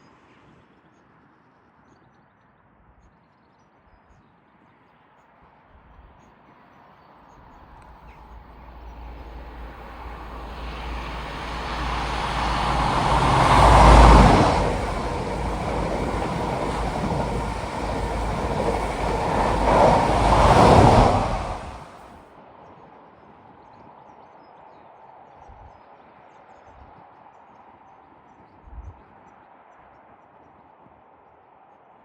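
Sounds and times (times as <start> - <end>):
train passing: 7.4 - 22.2.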